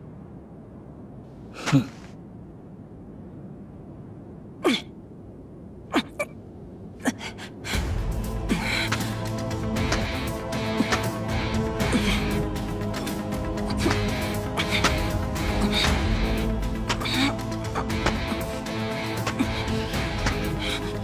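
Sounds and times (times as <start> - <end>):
low rumble: 2.2 - 21.0
music: 7.7 - 21.0.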